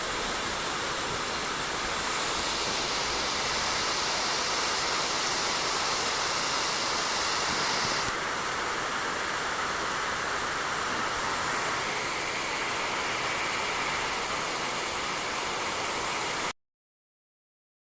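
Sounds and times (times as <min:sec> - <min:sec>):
rain on a roof: 0:00.0 - 0:16.5.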